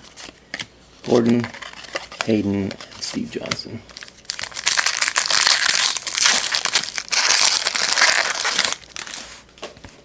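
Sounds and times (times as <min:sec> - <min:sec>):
foil wrapper crinkling: 0:03.9 - 0:09.4.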